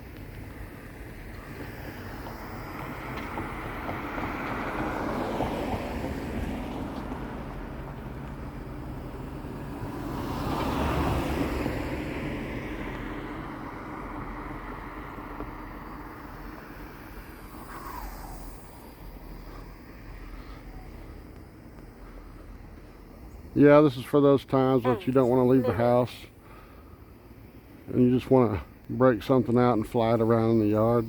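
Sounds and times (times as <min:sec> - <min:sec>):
propeller aircraft droning: 0:00.0 - 0:23.6.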